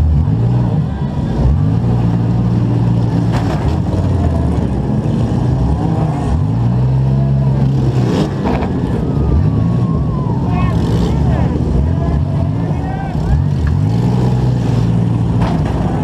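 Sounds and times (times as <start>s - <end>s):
car engine revving: 0.0s - 16.0s
cars colliding bangs: 15.0s - 16.0s.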